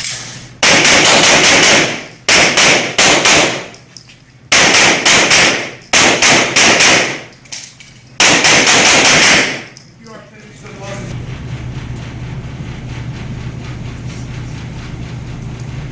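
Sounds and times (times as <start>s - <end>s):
rapid pistol fire: 0.6s - 3.8s, 4.5s - 7.3s, 8.2s - 9.8s.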